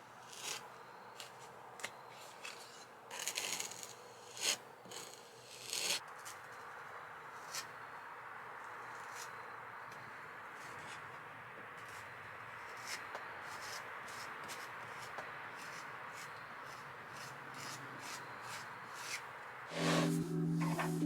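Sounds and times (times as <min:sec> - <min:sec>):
hands rubbing: 0:19.7 - 0:21.0
music: 0:19.7 - 0:21.0.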